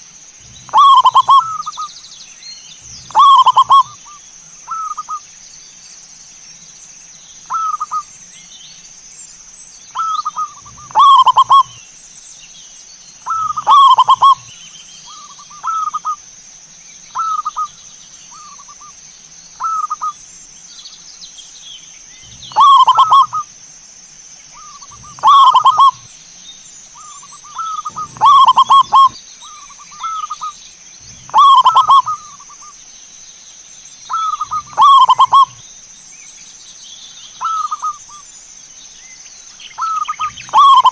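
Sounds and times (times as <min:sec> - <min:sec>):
dove cooing: 0:00.4 - 0:01.9, 0:02.8 - 0:04.1, 0:10.0 - 0:11.8, 0:13.2 - 0:14.5, 0:15.1 - 0:16.2, 0:22.3 - 0:23.5, 0:24.6 - 0:26.1, 0:27.0 - 0:30.5, 0:31.1 - 0:32.6, 0:34.1 - 0:35.6, 0:39.8 - 0:40.9.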